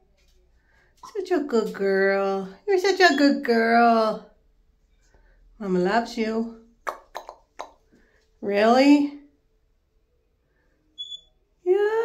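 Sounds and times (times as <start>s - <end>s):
person speaking: 1.0s - 4.3s.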